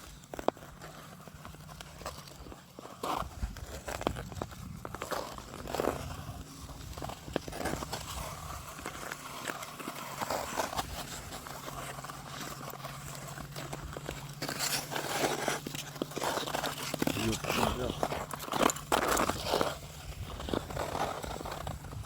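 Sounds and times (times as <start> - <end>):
clicks and knocks on lake ice: 0.0 - 22.0.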